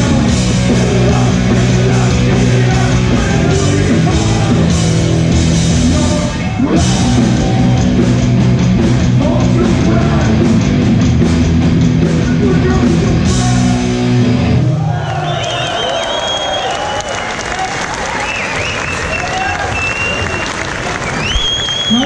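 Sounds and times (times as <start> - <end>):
punk band playing live: 0.0 - 14.9
crowd noise: 0.0 - 22.0.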